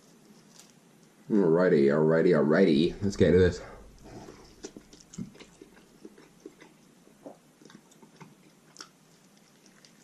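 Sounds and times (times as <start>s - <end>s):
person chewing chicken: 3.8s - 10.0s.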